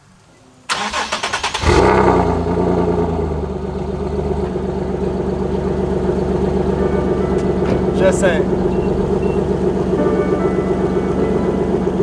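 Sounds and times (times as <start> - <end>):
car engine idling loudly: 1.6 - 12.0.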